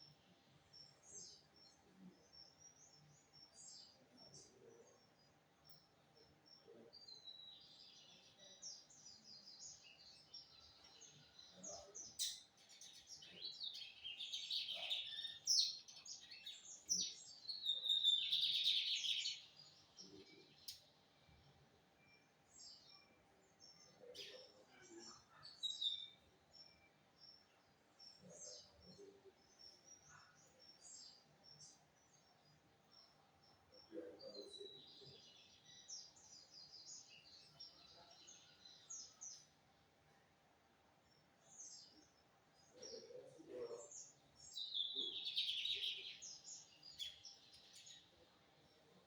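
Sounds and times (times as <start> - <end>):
bird singing: 0.0 - 39.6, 41.0 - 49.0
bird chirps: 6.5 - 21.4, 41.2 - 49.0.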